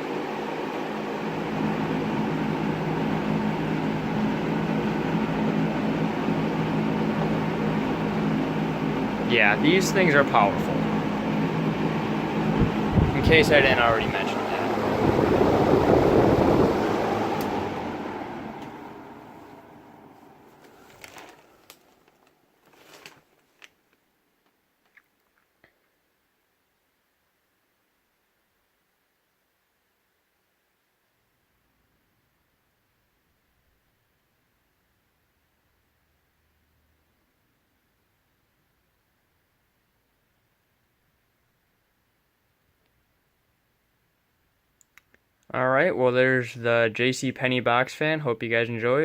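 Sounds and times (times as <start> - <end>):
box fan running: 0.0 - 23.2.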